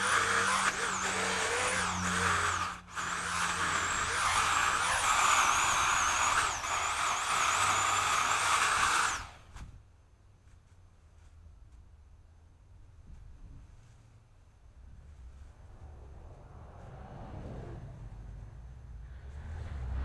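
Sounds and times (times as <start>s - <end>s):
chainsaw engine at high revs: 0.0s - 9.5s.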